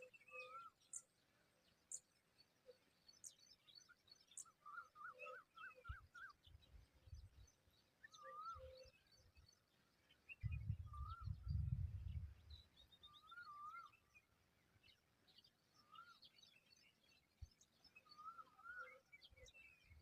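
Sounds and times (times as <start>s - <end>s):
low wind rumble: 10.4s - 12.6s.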